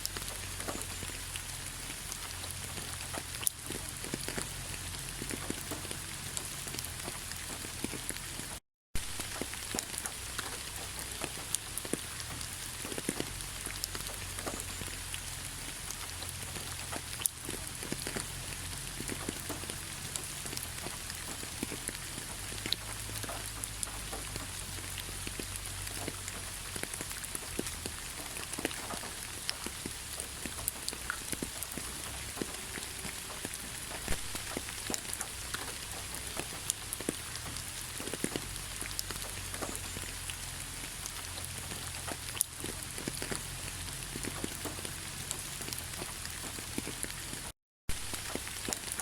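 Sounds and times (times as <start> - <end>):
heavy rain: 0.0 - 49.0
raindrops ticking on a surface: 0.0 - 49.0.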